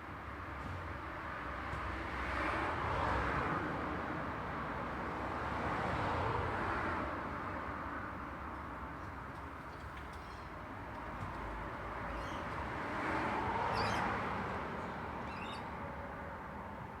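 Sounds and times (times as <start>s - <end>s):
vehicles passing: 10.6s - 17.0s.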